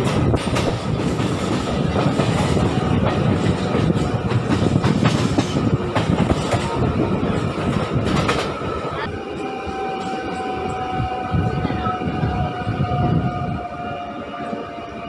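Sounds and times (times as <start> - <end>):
clacks over rail joints: 0.0 - 6.8
train wheels rumbling on rails: 0.0 - 15.0.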